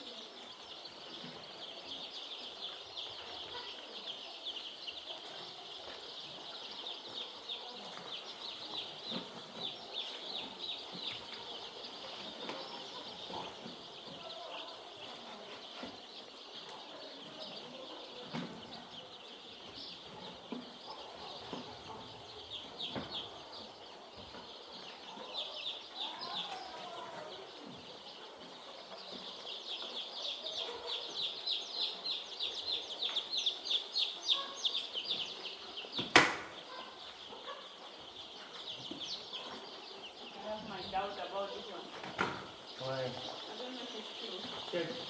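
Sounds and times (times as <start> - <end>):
chicks peeping: 0.0 - 45.0
sharp knock: 36.1 - 36.6.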